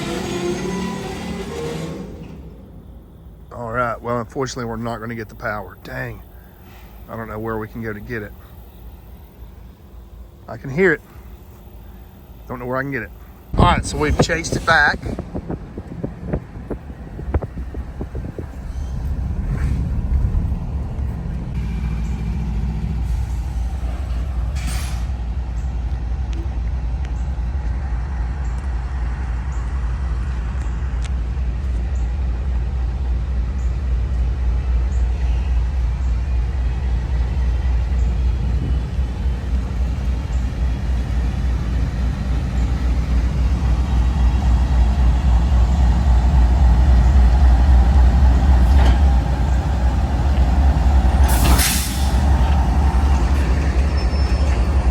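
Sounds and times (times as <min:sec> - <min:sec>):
heavy engine rumbling: 0:00.0 - 0:54.9.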